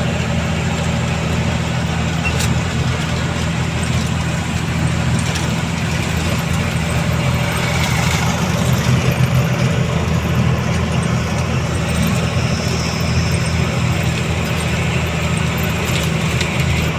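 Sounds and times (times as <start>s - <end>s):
truck diesel engine running: 0.0s - 16.9s.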